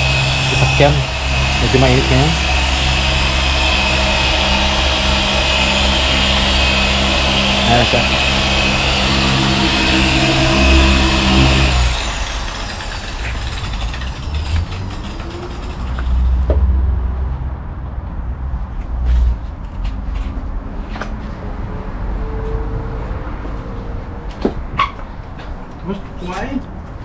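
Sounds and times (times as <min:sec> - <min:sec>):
motor machine whining and winding down: 0:00.0 - 0:16.6
low rumble: 0:00.0 - 0:17.2.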